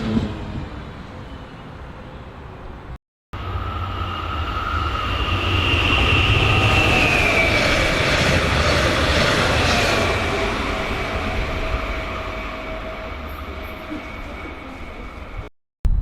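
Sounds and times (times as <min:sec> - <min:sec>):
train passing on rails: 0:00.0 - 0:15.5
high motor whine: 0:03.4 - 0:15.5.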